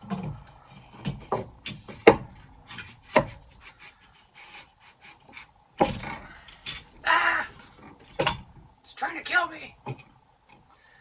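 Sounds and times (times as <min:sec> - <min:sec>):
wood scraping: 0:00.0 - 0:06.5
wood knocking on wood: 0:01.1 - 0:03.4.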